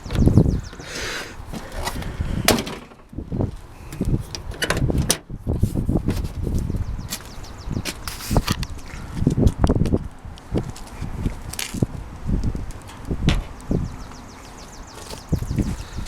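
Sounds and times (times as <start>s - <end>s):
truck cab door knocks and clicks: 2.4s - 3.1s, 13.2s - 13.6s.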